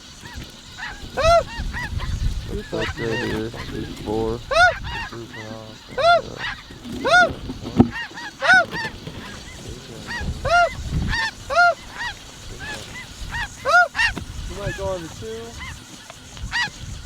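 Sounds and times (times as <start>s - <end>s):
geese yelping honks: 0.0s - 17.0s.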